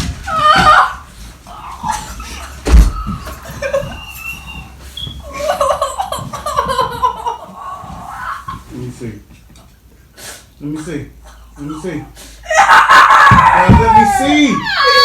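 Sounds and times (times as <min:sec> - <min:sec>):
heavy thump: 0:02.6 - 0:03.4, 0:13.3 - 0:14.1
people laughing loudly: 0:03.2 - 0:08.7, 0:12.5 - 0:15.0.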